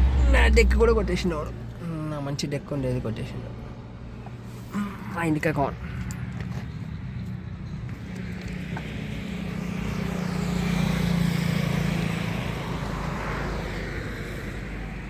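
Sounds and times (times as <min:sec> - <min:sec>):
vehicle passing by: 0:00.0 - 0:02.0, 0:05.6 - 0:15.0.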